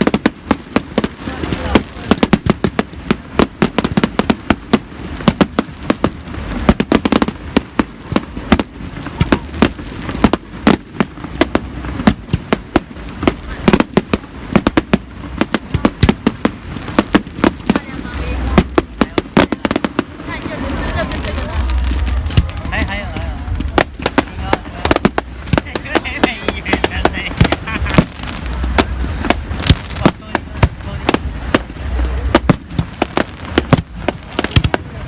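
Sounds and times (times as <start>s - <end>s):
fireworks bangs and crackles: 0.0s - 35.0s
low rumble: 7.4s - 35.0s.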